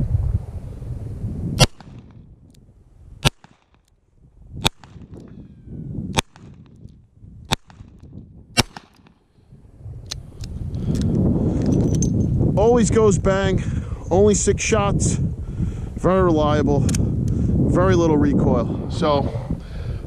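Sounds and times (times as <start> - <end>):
revolver shots: 1.6 - 2.2.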